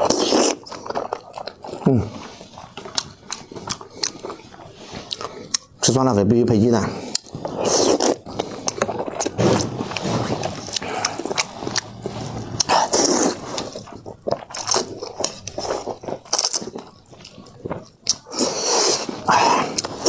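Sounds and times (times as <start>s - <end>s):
wet chewing of noodles: 0.0s - 5.9s, 6.8s - 20.0s.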